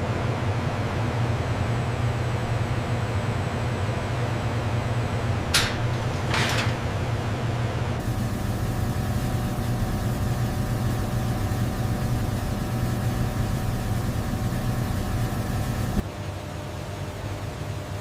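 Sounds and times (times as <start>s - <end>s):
machine hum: 5.3s - 16.1s.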